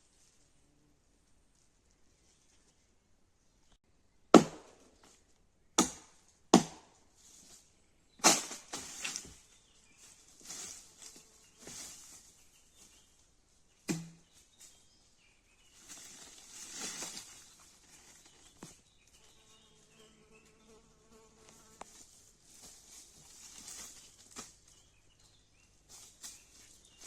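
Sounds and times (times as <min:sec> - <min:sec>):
axe chopping wood: 0:04.3 - 0:04.8, 0:05.8 - 0:06.9, 0:08.2 - 0:08.8, 0:13.9 - 0:14.3
rustling and crackling: 0:07.0 - 0:13.1, 0:15.7 - 0:19.6, 0:21.4 - 0:27.0.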